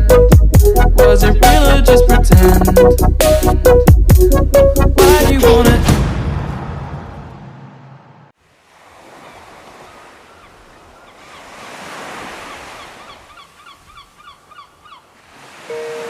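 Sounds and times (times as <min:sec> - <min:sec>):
surf washing in: 0:08.4 - 0:14.0, 0:15.1 - 0:16.0.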